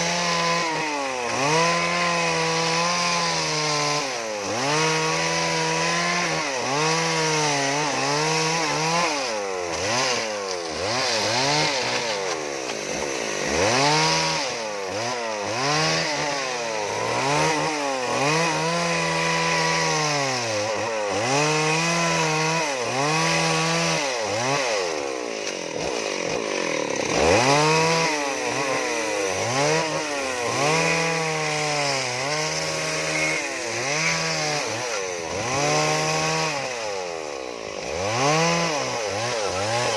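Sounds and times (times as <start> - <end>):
chainsaw carving wood: 0.0 - 39.9.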